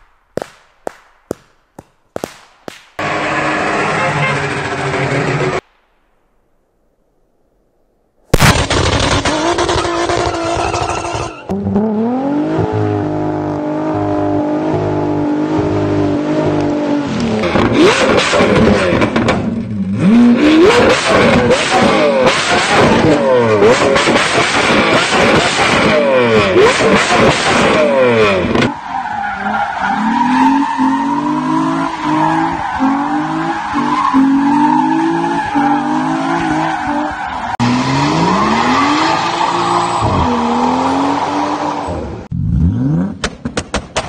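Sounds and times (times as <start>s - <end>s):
car engine revving hard: 8.8s - 28.7s, 30.0s - 43.2s.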